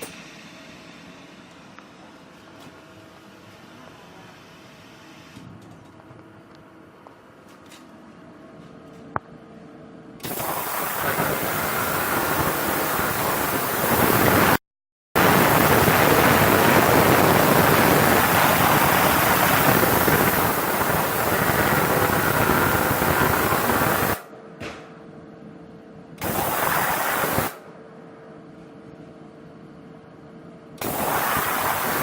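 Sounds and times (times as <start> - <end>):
ultrasonic cleaner hissing: 10.2 - 14.6, 15.2 - 24.2, 26.2 - 27.6, 30.8 - 32.0.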